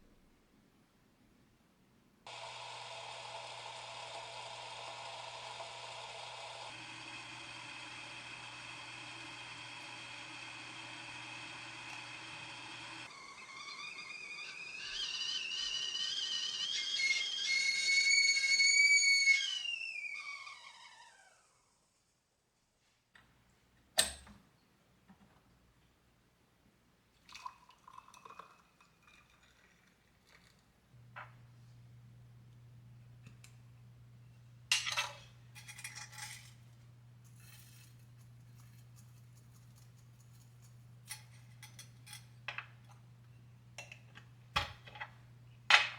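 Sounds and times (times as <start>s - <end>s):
kettle whistling: 2.3s - 21.4s.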